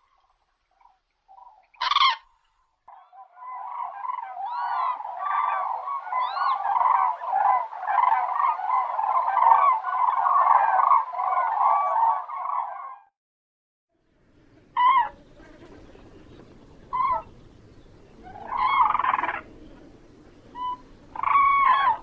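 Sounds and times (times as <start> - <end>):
cranes trumpeting calls: 1.7 - 2.3, 14.8 - 17.6, 18.2 - 22.0.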